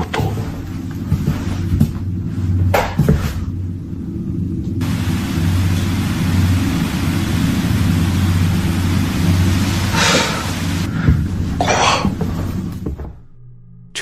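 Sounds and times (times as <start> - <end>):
low hum and rumble: 0.0 - 14.0
loud steady hiss: 4.8 - 12.8.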